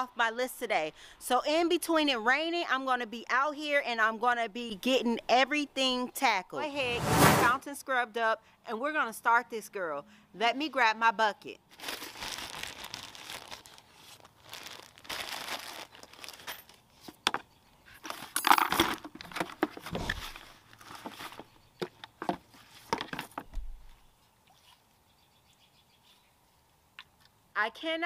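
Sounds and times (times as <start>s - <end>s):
objects rustling and clinking: 15.7s - 23.6s.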